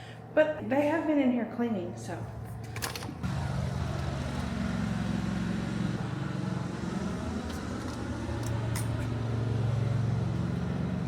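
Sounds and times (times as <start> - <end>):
motor humming: 2.6 - 11.0.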